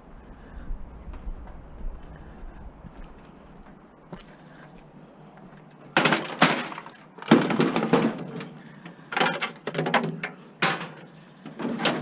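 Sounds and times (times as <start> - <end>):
plastic and metal parts clattering: 5.9 - 12.0.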